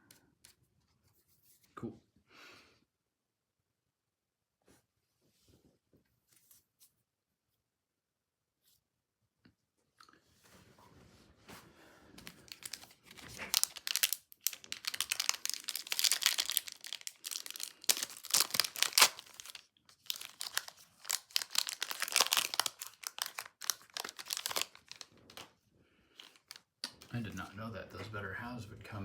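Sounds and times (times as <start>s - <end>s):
wrapper being torn open: 12.2s - 25.5s, 26.2s - 27.1s
plastic wrapper crinkling: 12.2s - 27.4s.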